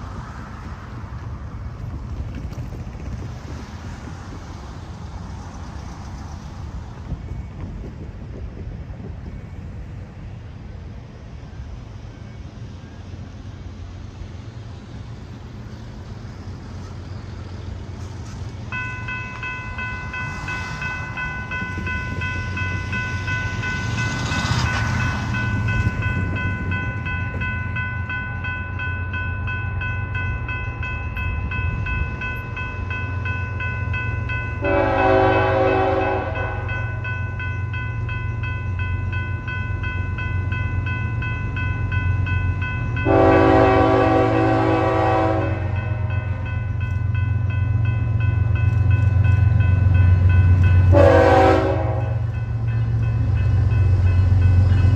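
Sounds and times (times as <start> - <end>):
locomotive rumble: 0.0 - 54.9
locomotive horn: 34.6 - 36.9, 43.0 - 46.1, 50.8 - 52.3.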